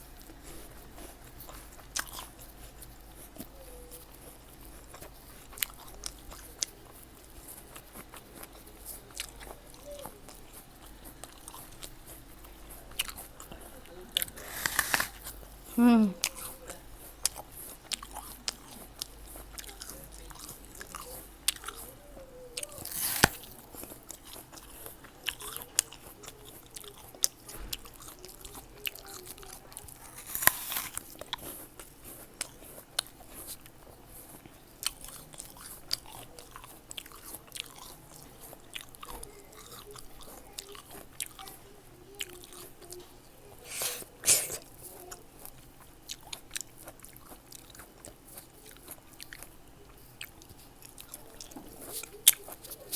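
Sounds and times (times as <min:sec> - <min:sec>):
wet chewing: 0:00.0 - 0:52.9
crunching bites: 0:14.2 - 0:15.4, 0:22.7 - 0:24.0, 0:30.0 - 0:31.6.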